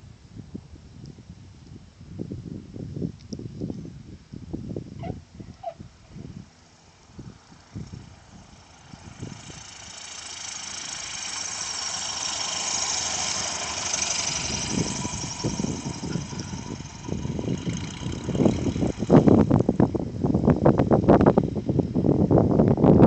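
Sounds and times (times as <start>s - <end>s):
wind buffeting microphone: 0.0s - 23.0s
propeller airplane flying past: 4.9s - 22.3s.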